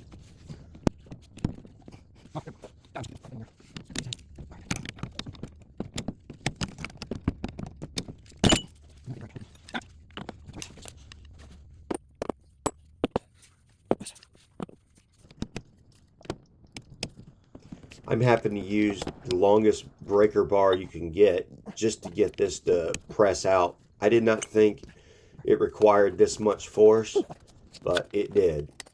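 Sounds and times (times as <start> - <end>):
metal tools clinking: 8.2 - 9.8.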